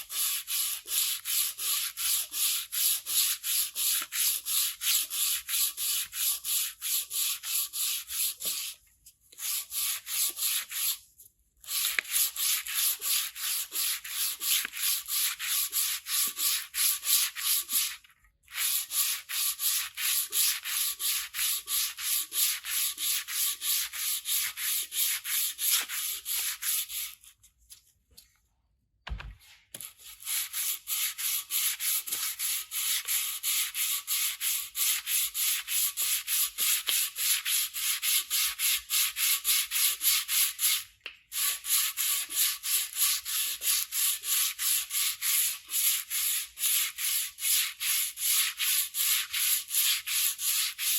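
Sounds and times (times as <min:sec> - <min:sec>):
sandpaper rubbing on metal: 0:00.0 - 0:08.8, 0:09.4 - 0:27.3, 0:29.8 - 0:50.9.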